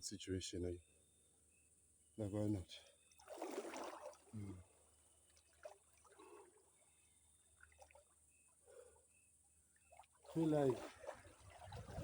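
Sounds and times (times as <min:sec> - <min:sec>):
faint water trickles: 0:00.8 - 0:12.0
swimmer splashing water: 0:03.2 - 0:04.3, 0:10.2 - 0:12.0.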